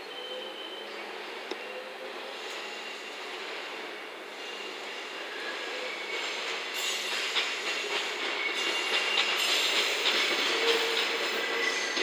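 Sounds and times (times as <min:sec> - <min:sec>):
train rolling on track: 0:00.2 - 0:12.0
wheels clacking over rails: 0:06.8 - 0:12.0.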